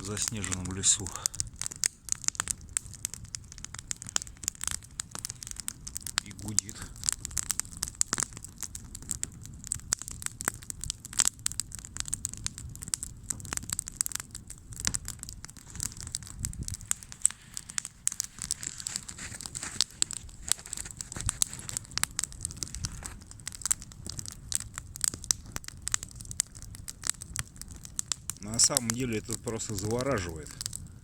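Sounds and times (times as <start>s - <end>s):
campfire crackling and popping: 0.0s - 31.0s
low hum of flames: 0.0s - 31.0s.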